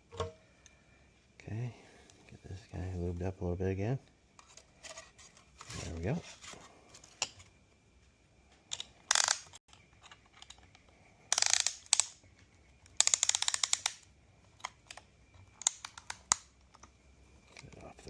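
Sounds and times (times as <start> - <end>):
hand ratchet clicking: 8.7 - 9.6, 11.3 - 12.2, 13.0 - 14.0.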